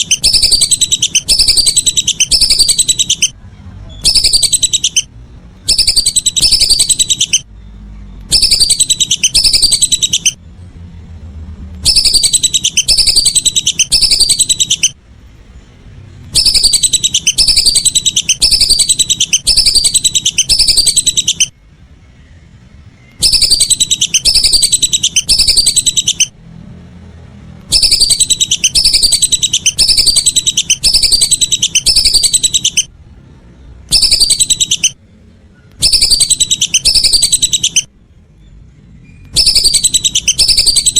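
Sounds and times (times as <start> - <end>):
whistling ducks calling: 0.0 - 3.4, 4.0 - 7.5, 8.3 - 10.4, 11.8 - 15.0, 16.3 - 21.5, 23.0 - 26.4, 27.7 - 32.9, 33.9 - 35.0, 35.7 - 37.9, 39.1 - 40.9.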